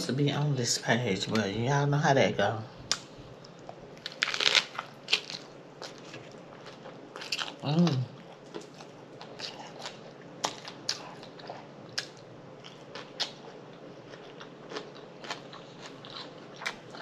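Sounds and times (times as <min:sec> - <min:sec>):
crunchy chewing clicks: 0:08.2 - 0:17.0.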